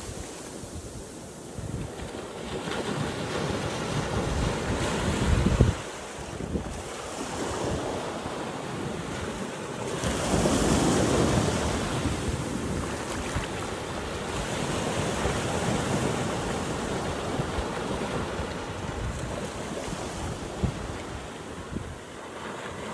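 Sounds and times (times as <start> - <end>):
wind buffeting microphone: 0.0 - 9.4, 10.0 - 22.9.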